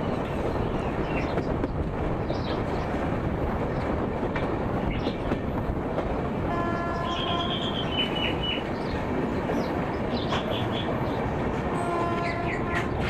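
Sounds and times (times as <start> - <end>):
train wheels on track: 0.0 - 13.0
train horn: 6.5 - 7.8, 11.7 - 13.0.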